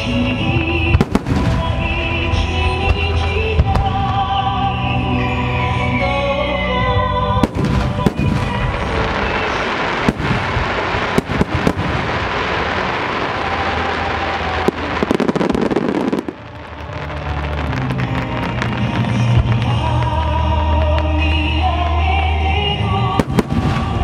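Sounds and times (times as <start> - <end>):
firework crackle: 0.0 - 4.6, 7.4 - 24.0
song on loudspeakers: 0.0 - 11.7, 14.9 - 24.0
firework shells booming: 23.2 - 24.0.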